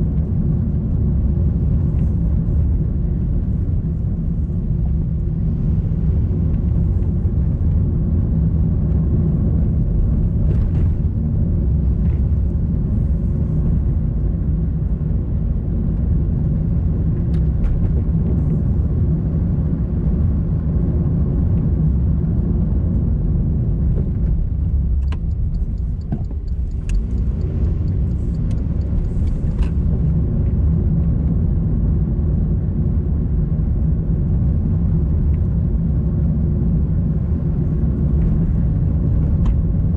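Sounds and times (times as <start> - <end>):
car engine and road rumble: 0.0 - 39.9
faint clicks: 24.9 - 29.8.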